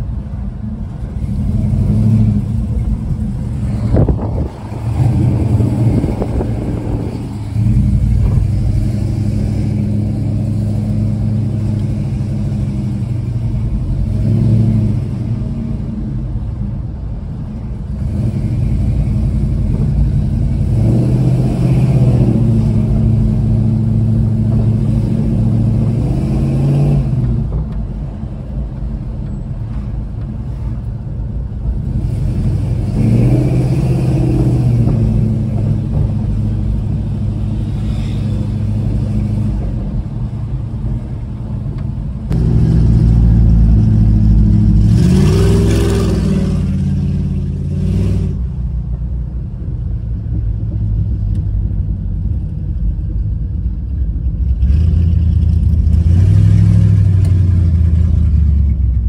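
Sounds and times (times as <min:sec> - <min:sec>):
car engine revving: 0:01.0 - 0:16.1, 0:17.9 - 0:27.6, 0:31.8 - 0:41.5, 0:42.2 - 0:48.6, 0:54.5 - 0:58.9.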